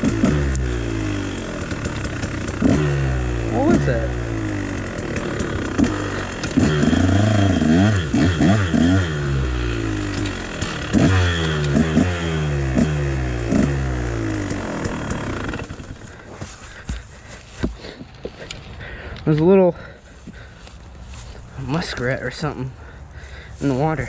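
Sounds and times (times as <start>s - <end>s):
dirt bike engine revving: 0.0s - 17.1s.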